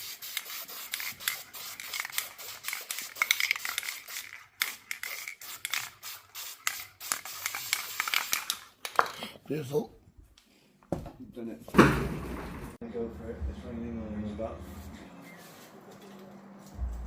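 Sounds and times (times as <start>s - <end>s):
spray paint can hissing: 0.0s - 8.6s.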